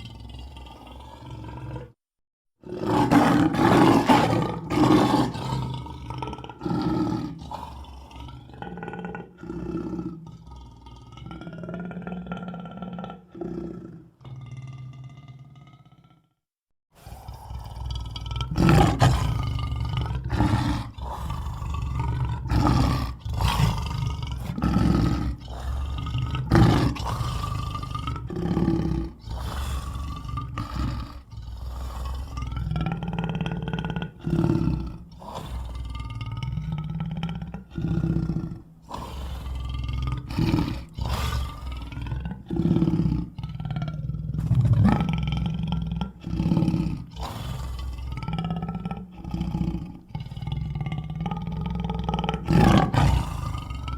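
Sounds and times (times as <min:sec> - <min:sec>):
monster roaring and grunting: 0:17.0 - 0:36.8, 0:44.3 - 0:50.3, 0:51.6 - 0:53.9.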